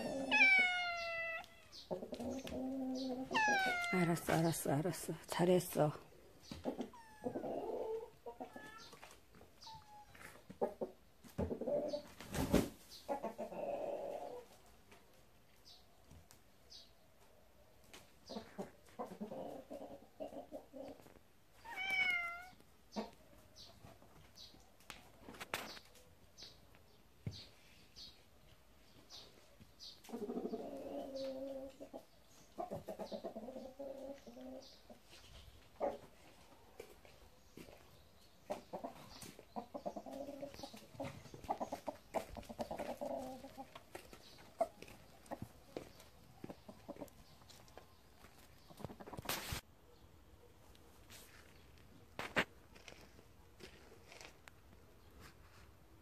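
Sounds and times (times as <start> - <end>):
bird chirps and clucking calls: 0.0 - 50.1.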